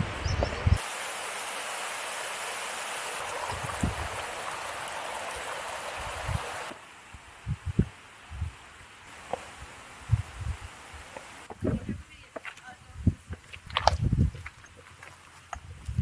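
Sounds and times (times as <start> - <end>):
mountain stream rushing: 0.0 - 7.1, 8.8 - 10.1.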